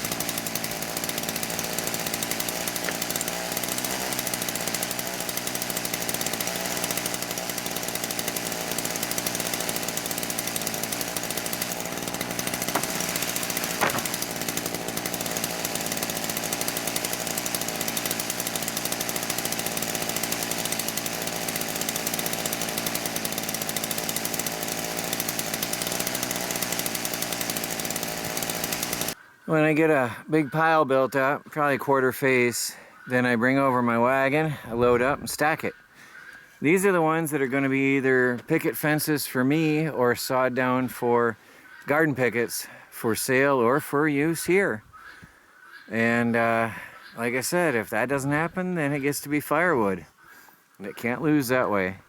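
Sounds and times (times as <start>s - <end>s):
chainsaw cutting wood: 0.0s - 29.2s
sharp knocks: 12.6s - 14.3s.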